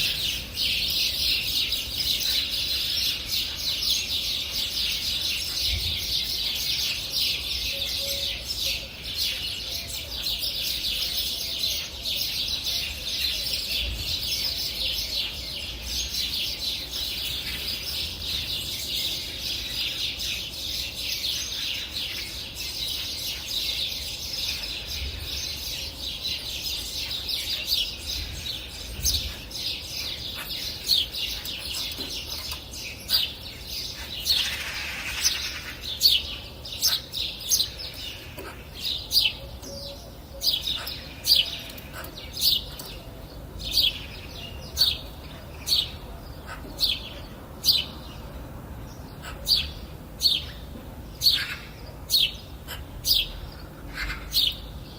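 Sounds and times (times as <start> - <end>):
songbirds chirping: 0.0 - 54.9.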